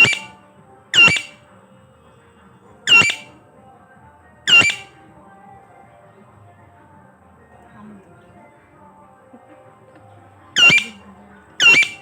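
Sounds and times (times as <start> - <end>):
parrot squawking: 0.0 - 0.4, 1.0 - 1.4, 2.9 - 3.3, 4.5 - 4.9, 10.6 - 11.0, 11.6 - 12.0.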